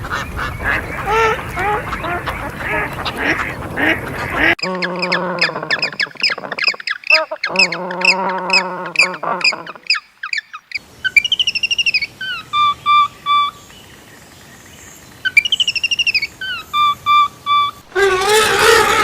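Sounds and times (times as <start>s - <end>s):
songbird warbling and whistling: 4.6s - 13.7s, 15.2s - 19.0s.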